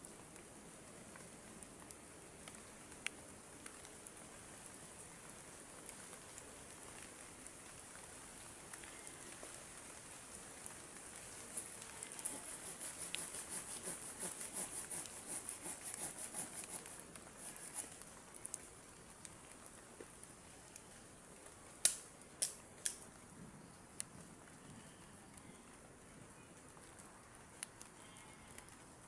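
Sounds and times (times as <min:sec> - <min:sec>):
hand tool scraping: 0:11.6 - 0:18.0.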